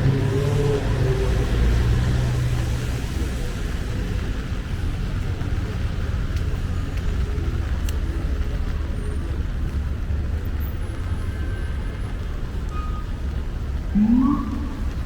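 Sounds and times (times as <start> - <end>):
city street traffic rumble: 0.0 - 15.0
faint clicks: 6.3 - 8.8.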